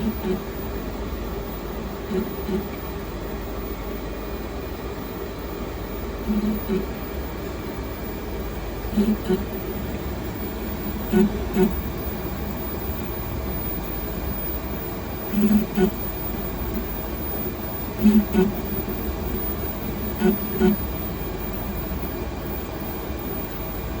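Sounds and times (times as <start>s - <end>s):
short pitched motor buzzes: 0.0s - 0.6s, 2.1s - 2.8s, 6.2s - 7.0s, 8.9s - 9.7s, 10.9s - 12.0s, 15.3s - 16.0s, 18.0s - 18.8s, 20.0s - 21.0s
three d printer humming: 0.0s - 24.0s.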